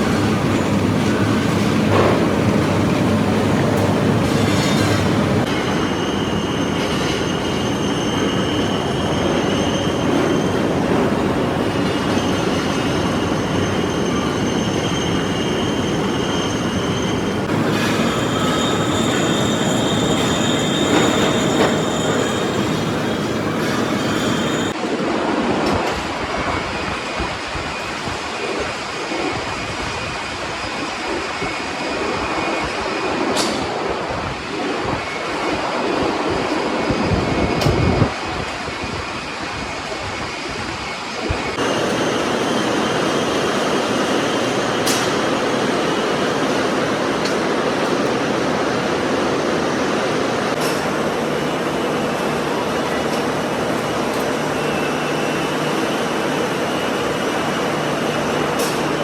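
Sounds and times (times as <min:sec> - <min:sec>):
metal clattering and squealing: 0:00.0 - 0:24.7
mechanical hum: 0:00.0 - 0:24.8.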